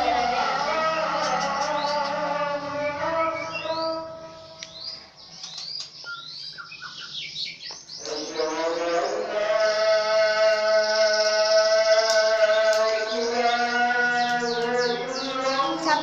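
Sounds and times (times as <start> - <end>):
person chanting a held note: 0.0 - 4.7
birds chirping: 0.0 - 16.0.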